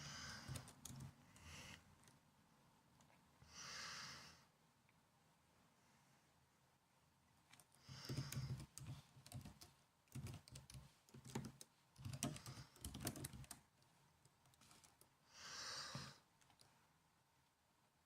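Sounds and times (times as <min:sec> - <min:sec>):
laptop keyboard typing: 0:00.0 - 0:01.6, 0:07.6 - 0:13.7, 0:14.4 - 0:15.1.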